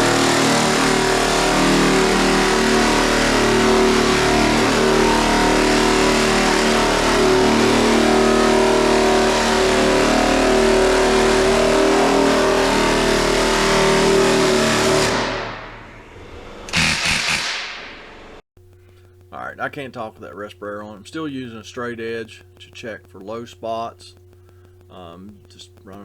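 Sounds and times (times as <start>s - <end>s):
body sander humming: 0.0s - 15.4s, 16.7s - 17.5s.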